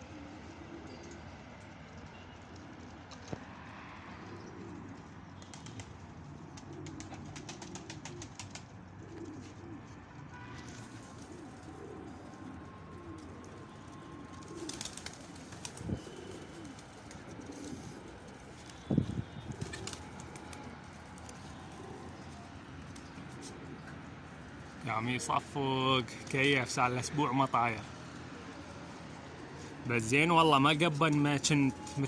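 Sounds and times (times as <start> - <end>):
pigeons cooing: 0.0 - 1.4, 4.0 - 25.5, 28.2 - 29.9
wings flapping: 5.4 - 9.7, 14.3 - 22.1.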